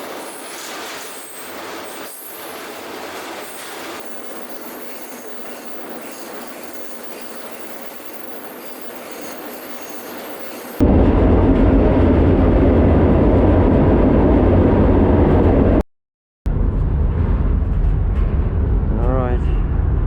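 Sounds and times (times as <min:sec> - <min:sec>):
train running on rails: 0:00.0 - 0:15.8.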